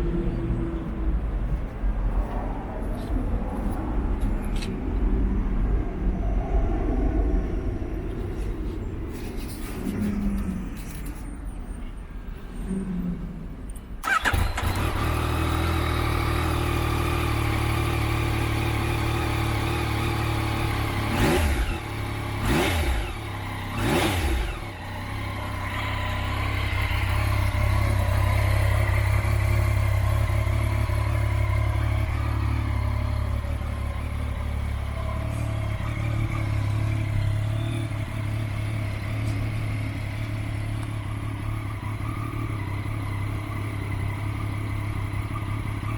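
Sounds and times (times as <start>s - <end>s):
motorcycle engine idling: 14.0s - 45.9s.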